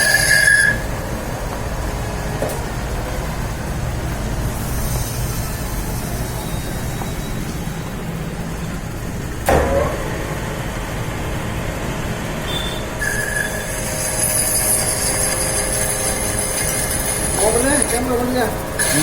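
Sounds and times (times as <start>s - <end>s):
high squealing whine from cutting: 0.0s - 1.1s, 4.5s - 8.1s, 12.4s - 19.0s
metal lathe running: 0.0s - 9.5s, 10.4s - 19.0s
sharp knock: 9.5s - 10.0s.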